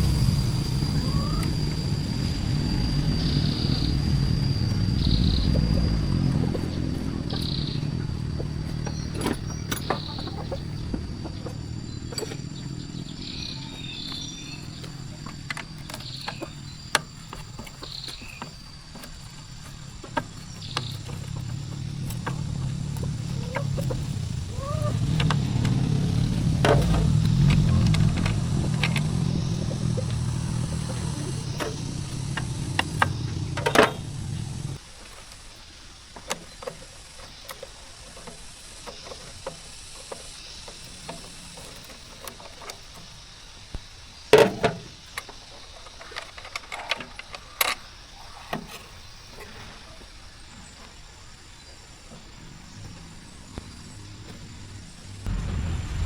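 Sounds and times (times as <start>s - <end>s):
motor humming: 0.0s - 34.8s.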